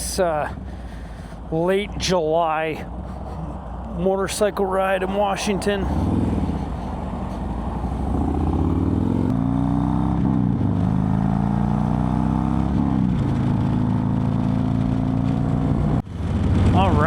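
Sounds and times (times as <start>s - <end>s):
motorcycle engine accelerating: 2.8s - 17.0s
wind rush: 5.1s - 9.3s.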